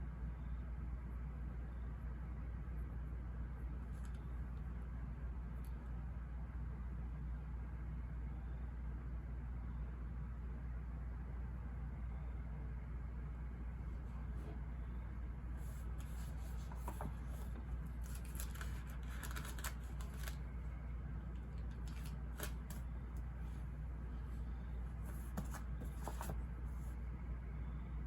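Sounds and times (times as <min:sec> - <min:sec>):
low white-noise hum: 0:00.0 - 0:28.0
paper rustling and clicking: 0:15.7 - 0:20.5, 0:21.4 - 0:22.9, 0:25.1 - 0:26.4.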